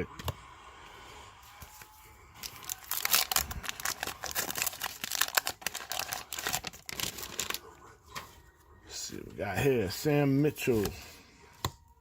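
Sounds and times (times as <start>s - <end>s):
wax paper wrapper crinkling: 1.6s - 7.7s
wrapper tearing: 2.4s - 7.6s.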